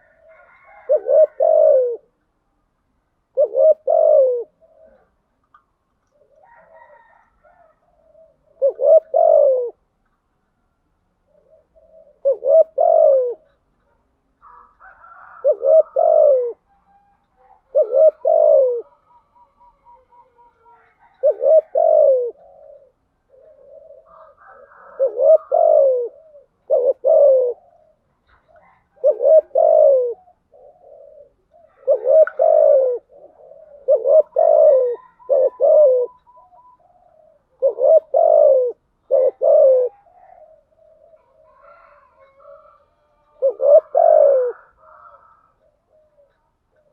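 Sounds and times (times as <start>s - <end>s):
doves cooing: 0.0s - 2.2s, 3.3s - 9.9s, 11.2s - 46.9s
bird chirps and trill: 29.6s - 38.5s.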